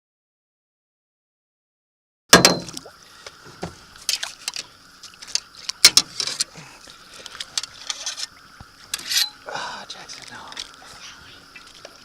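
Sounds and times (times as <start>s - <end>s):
faint steady hum: 2.4s - 12.0s.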